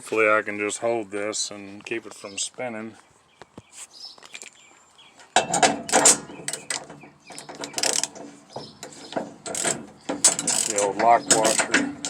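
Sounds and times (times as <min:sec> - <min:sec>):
metal clatter: 0:05.4 - 0:12.0
ratchet clicking: 0:06.0 - 0:08.2, 0:09.5 - 0:11.9.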